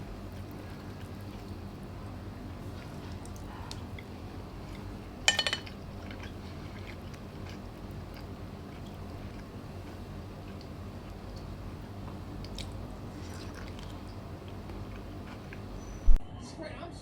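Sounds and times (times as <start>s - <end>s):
steady low hum: 0.0s - 16.5s
tableware clinking: 5.2s - 6.2s.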